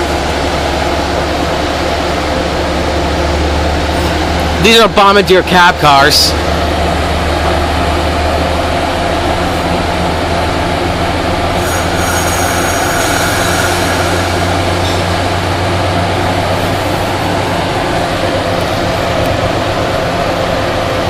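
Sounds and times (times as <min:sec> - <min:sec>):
locomotive engine drone: 0:00.0 - 0:21.0
train rolling along track: 0:00.0 - 0:21.0
high-pitched squeal: 0:11.4 - 0:17.4.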